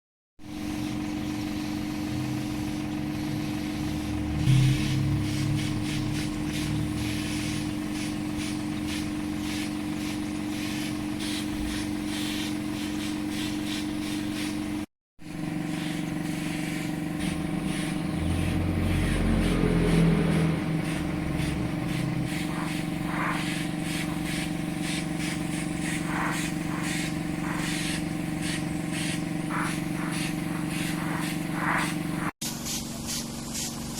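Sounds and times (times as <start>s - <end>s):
machine humming: 1.8s - 10.8s, 15.2s - 32.4s.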